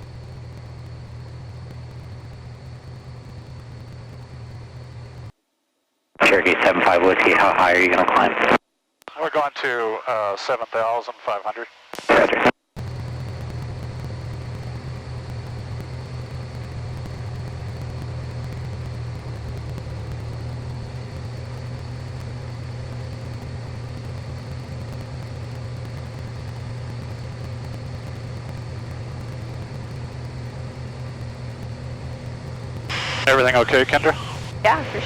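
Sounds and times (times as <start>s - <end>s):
airplane engine and propeller droning: 0.0s - 5.3s, 12.8s - 35.0s
faint high whine: 0.0s - 35.0s.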